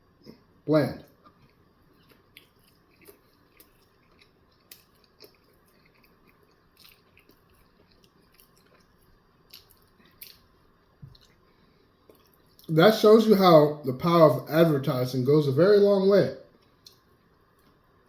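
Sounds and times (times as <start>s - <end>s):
person chewing: 1.1s - 12.7s.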